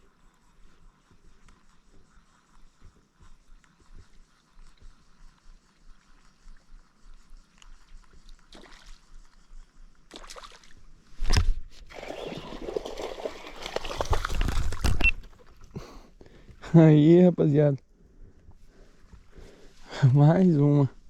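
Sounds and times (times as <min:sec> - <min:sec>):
fish thrashing in sloshing water: 0:11.9 - 0:15.6.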